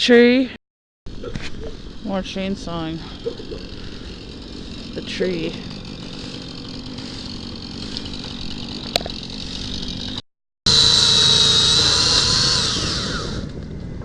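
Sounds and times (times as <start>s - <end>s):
distant chainsaw running: 1.1s - 14.0s
loud chainsaw at high revs: 3.1s - 13.6s.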